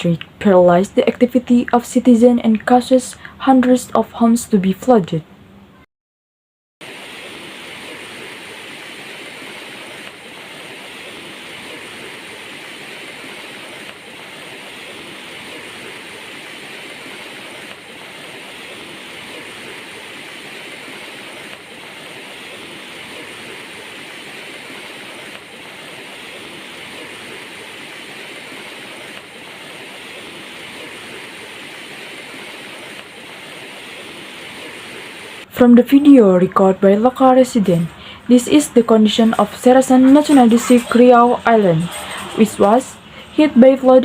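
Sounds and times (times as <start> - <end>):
rushing water: 6.8 - 35.5.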